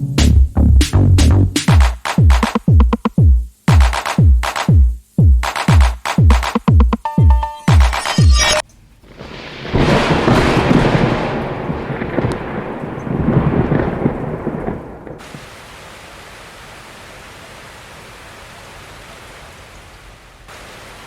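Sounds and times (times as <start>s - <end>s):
steady rain hiss: 1.4s - 6.6s, 8.7s - 21.0s
thunder rolling: 9.0s - 15.4s.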